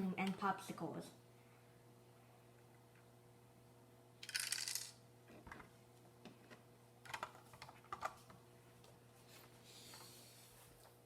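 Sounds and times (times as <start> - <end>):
plastic pieces rattling: 4.2 - 5.0.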